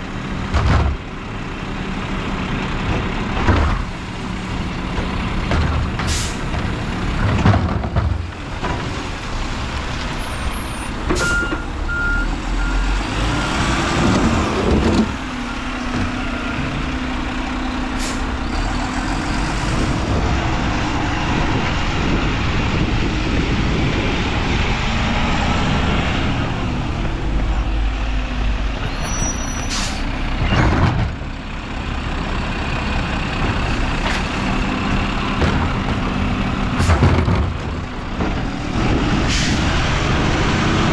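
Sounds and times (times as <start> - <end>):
garbage truck running: 0.0 - 40.9
air brake hisses: 6.1 - 6.4, 18.0 - 18.3, 29.2 - 30.1.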